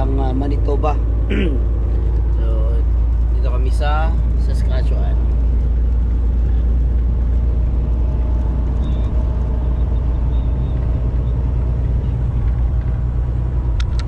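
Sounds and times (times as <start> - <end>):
truck diesel engine rumbling: 0.0 - 14.0.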